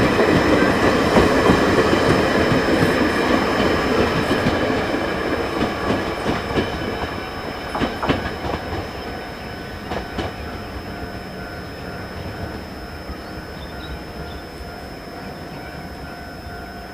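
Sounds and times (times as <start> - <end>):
train wheels clacking over rail joints: 0.0 - 10.6
train rumble: 0.0 - 16.9.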